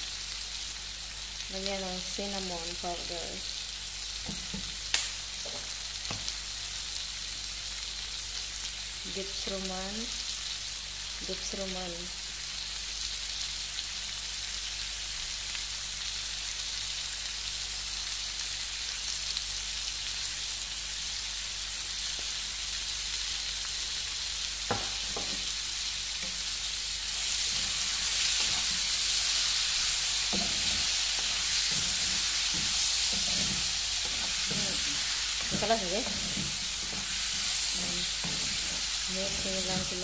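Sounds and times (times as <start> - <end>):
food sizzling in a frying pan: 0.0 - 40.0
wooden spatula knocking on pan: 24.7 - 25.4.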